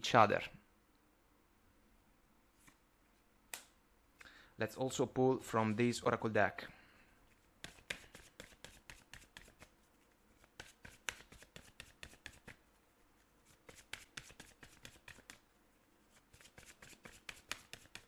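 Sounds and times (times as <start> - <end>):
cards being shuffled: 7.6 - 9.8, 10.4 - 12.6, 13.5 - 15.4, 16.2 - 18.0.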